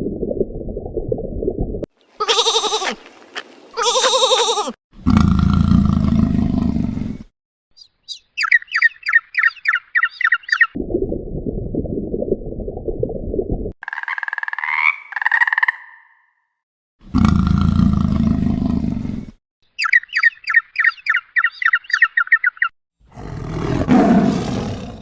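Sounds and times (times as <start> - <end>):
animal bleating: 2.1 - 4.8
bird chirping rapidly: 7.8 - 10.8, 19.7 - 22.7.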